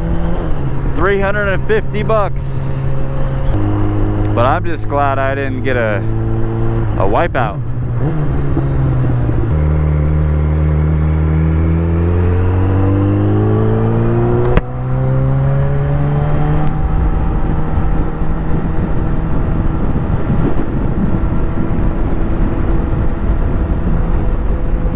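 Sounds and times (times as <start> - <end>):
motorcycle engine accelerating: 0.0 - 24.9
wind rush on microphone: 6.1 - 24.9.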